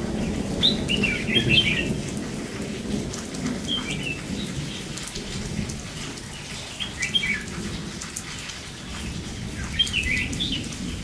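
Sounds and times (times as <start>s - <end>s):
rain falling: 0.0s - 11.0s
bird calls: 0.6s - 1.9s, 9.6s - 10.8s.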